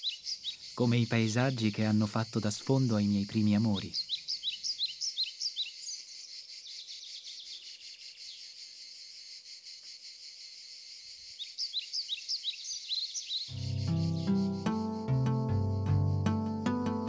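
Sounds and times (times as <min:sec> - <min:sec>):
bird chirping: 0:00.0 - 0:17.0
insects chirring: 0:00.0 - 0:17.0
soft music: 0:13.5 - 0:17.0.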